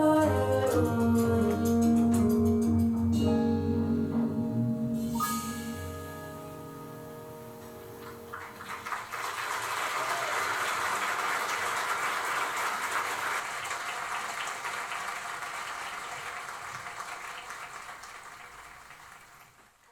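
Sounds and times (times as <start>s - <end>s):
applause: 8.3s - 19.9s.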